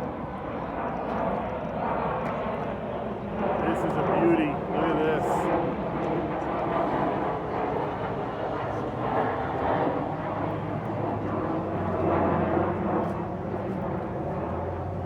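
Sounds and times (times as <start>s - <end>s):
people chatting: 3.6s - 5.5s.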